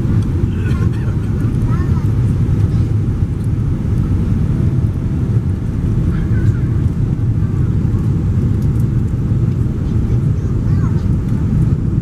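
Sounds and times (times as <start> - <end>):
airplane low rumble: 0.0 - 12.0
faint voices: 0.5 - 2.9.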